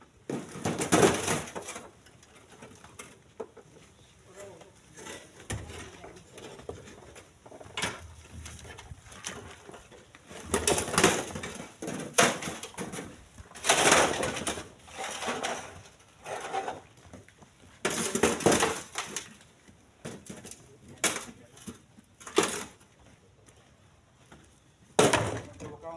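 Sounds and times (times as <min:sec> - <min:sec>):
stones clattering into truck bed: 0:00.2 - 0:03.6, 0:05.0 - 0:17.0, 0:17.8 - 0:19.4, 0:20.0 - 0:22.8, 0:25.0 - 0:25.7.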